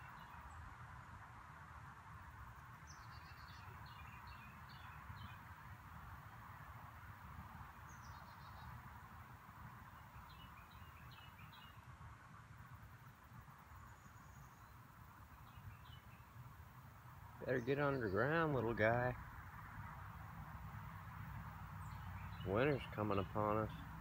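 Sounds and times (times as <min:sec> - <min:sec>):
small bird chirping: 0:02.8 - 0:05.5, 0:07.8 - 0:08.8, 0:09.9 - 0:11.9, 0:13.7 - 0:16.4, 0:21.6 - 0:24.0.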